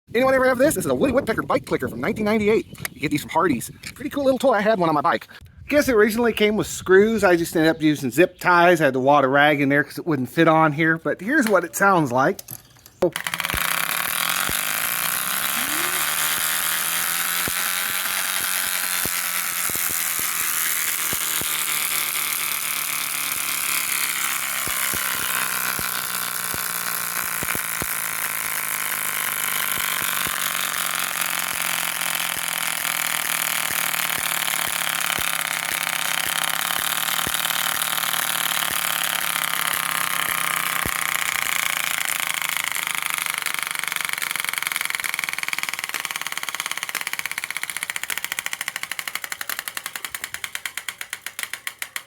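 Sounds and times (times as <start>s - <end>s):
bike clicker buzzing on spokes: 12.4s - 52.0s.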